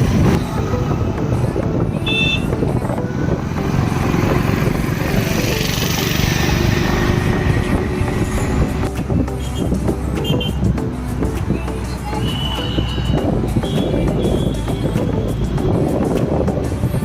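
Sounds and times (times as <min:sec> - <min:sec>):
motorcycle engine running: 0:00.0 - 0:11.7
road and wind noise: 0:00.0 - 0:17.0.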